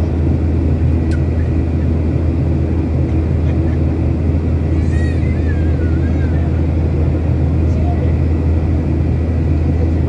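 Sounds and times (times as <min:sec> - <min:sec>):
airplane cabin engine rumble: 0:00.0 - 0:10.0.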